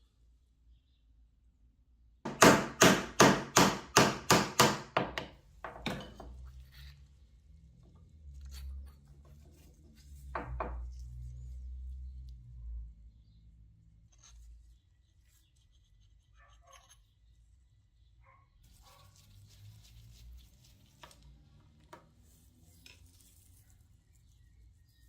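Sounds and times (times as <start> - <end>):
sharp knocks: 2.3 - 6.2.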